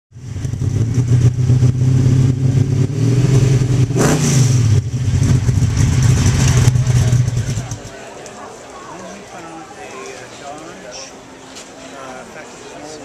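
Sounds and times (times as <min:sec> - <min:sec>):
car engine running: 0:00.2 - 0:07.9.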